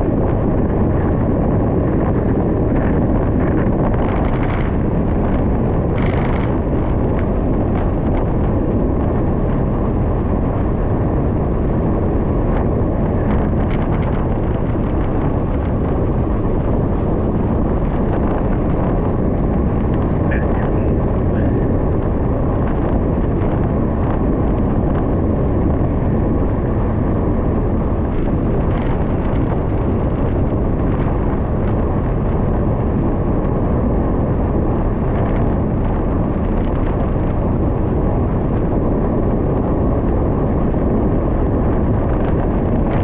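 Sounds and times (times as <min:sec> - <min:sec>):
wind rumble on microphone: 0:00.0 - 0:43.0
small clicks and rattles: 0:05.9 - 0:08.3, 0:28.0 - 0:31.1.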